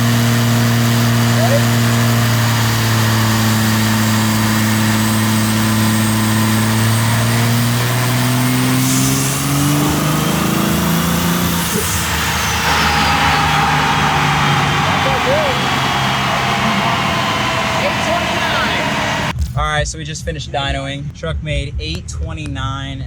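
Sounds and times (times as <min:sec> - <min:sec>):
high turbo whistle: 0:00.0 - 0:19.3
diesel engine running under load: 0:00.0 - 0:19.4.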